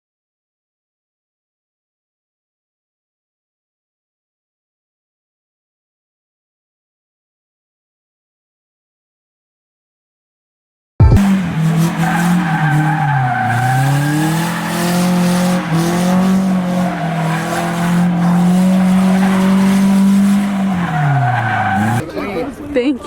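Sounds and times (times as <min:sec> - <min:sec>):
car engine revving hard: 0:11.2 - 0:22.0
tyre squeal: 0:11.2 - 0:22.0.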